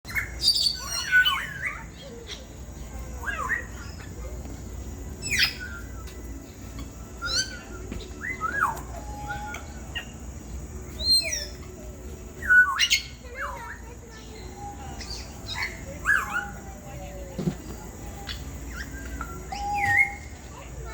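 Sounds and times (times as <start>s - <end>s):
parrot whistles and squawks: 0.1s - 2.4s, 5.2s - 6.3s, 7.2s - 10.1s, 12.4s - 13.6s, 18.3s - 20.4s.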